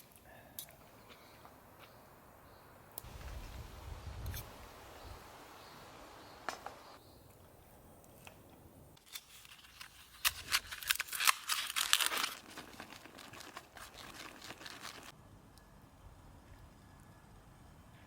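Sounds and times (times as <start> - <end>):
crinkling and rustling: 9.0 - 15.1.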